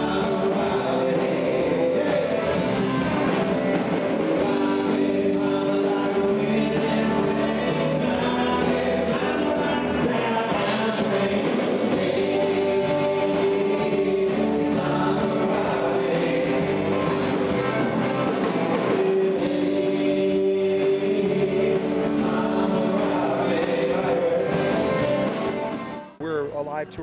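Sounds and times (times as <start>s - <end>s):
voices singing in harmony: 0.0s - 17.9s, 18.5s - 25.5s
band playing: 0.0s - 27.0s.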